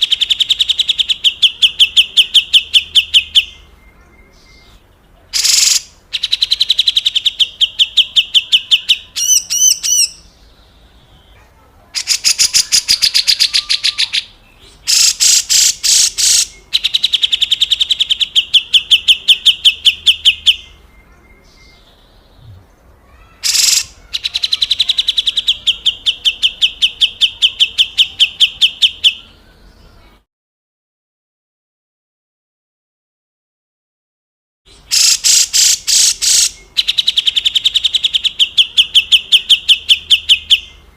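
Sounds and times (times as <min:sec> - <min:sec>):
bird harsh rattling calls: 0:05.3 - 0:10.2, 0:12.0 - 0:20.6, 0:23.1 - 0:29.2, 0:34.8 - 0:40.8.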